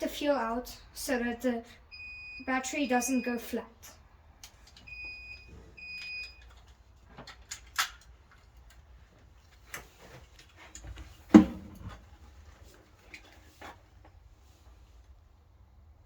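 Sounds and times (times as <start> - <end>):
loud knock: 11.3 - 11.7.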